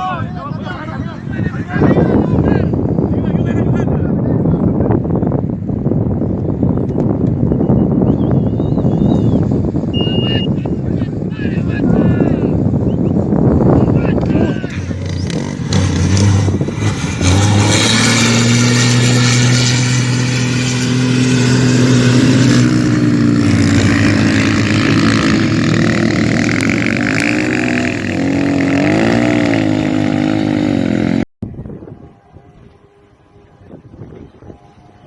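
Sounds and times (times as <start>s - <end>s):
rally car engine revving: 14.2s - 31.2s.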